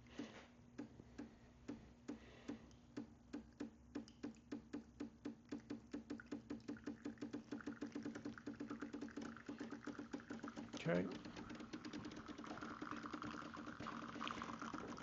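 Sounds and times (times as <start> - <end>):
espresso machine pump clicking: 4.5 - 15.0.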